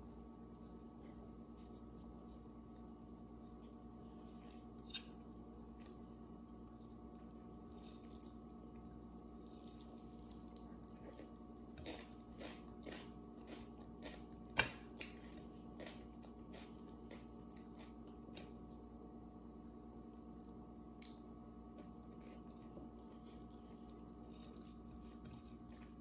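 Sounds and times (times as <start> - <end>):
steady low hum: 0.0 - 26.0
chewing and mouth sounds: 6.7 - 18.9, 21.8 - 26.0.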